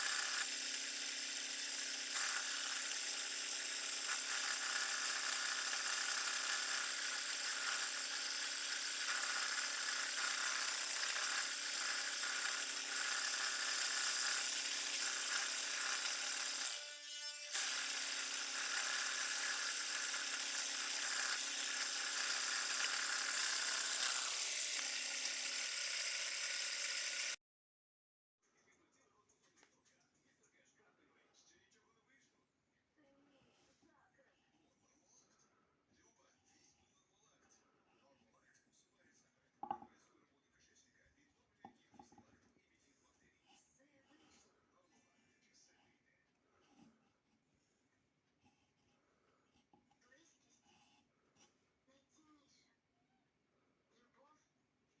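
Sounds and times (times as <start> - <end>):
wood lathe motor whine: 0.0 - 27.4.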